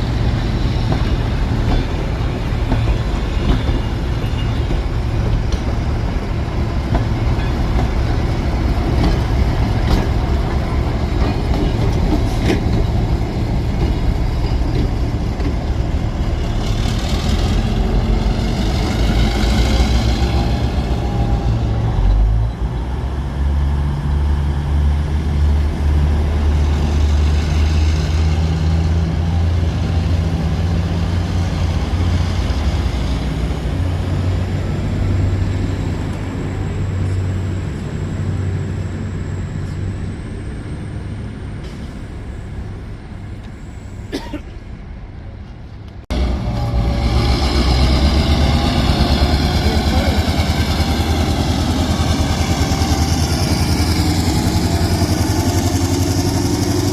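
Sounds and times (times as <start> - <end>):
locomotive engine humming: 0.0 - 56.9
louder engine running: 46.2 - 56.9.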